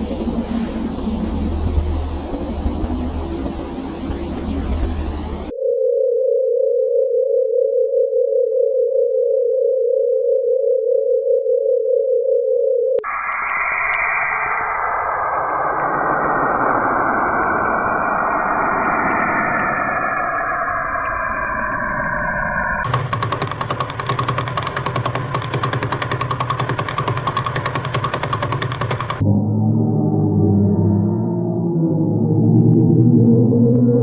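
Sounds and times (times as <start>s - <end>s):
dense rushing noise with tones: 0.0s - 5.5s, 13.0s - 34.0s
steady fluttering tone: 0.0s - 5.9s, 13.0s - 34.0s
hiss: 13.0s - 21.1s.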